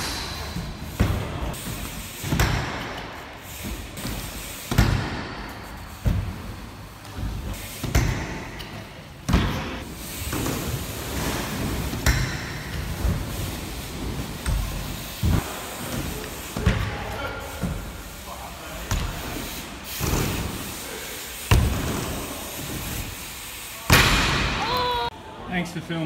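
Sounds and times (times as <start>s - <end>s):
bike landing thumps: 21.5s - 22.2s.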